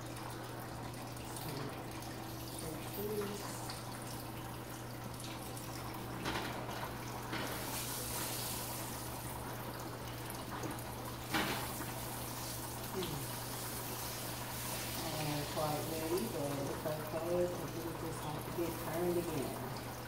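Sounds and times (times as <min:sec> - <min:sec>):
bread sizzling in grease: 0:05.4 - 0:19.7.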